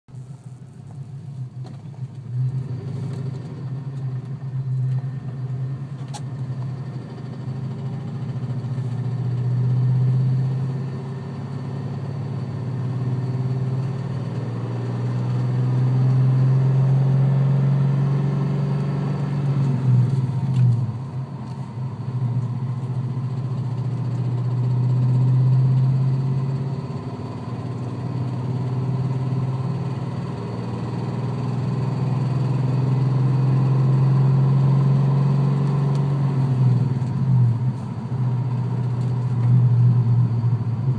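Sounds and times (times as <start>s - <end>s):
car engine idling: 19.6s - 32.0s.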